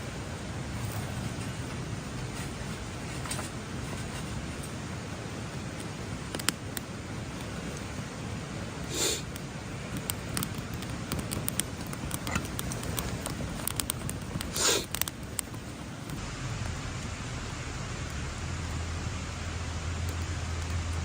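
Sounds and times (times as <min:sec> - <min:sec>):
fire hiss: 0:00.0 - 0:21.0
campfire crackling and popping: 0:00.1 - 0:21.0
rushing bursts: 0:16.1 - 0:21.0.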